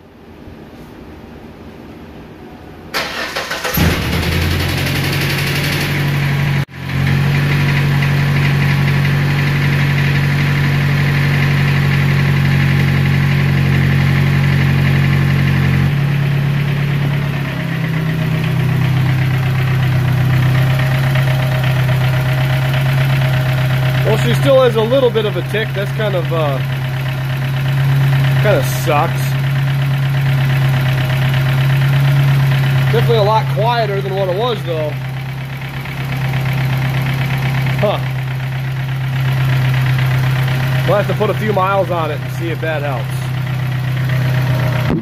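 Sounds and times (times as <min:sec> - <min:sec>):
engine starter cranking: 0:03.0 - 0:06.2
car engine idling: 0:03.0 - 0:45.0
engine ticking: 0:03.0 - 0:45.0.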